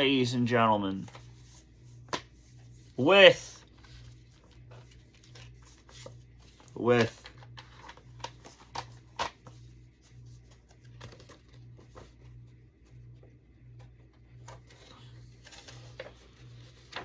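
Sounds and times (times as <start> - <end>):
steady low hum: 0.0 - 17.0
paper rustling: 3.6 - 13.0, 13.8 - 17.0.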